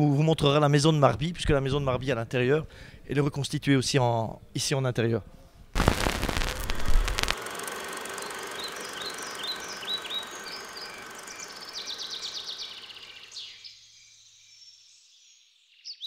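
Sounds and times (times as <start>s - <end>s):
bird chirping and trilling: 8.6s - 14.8s.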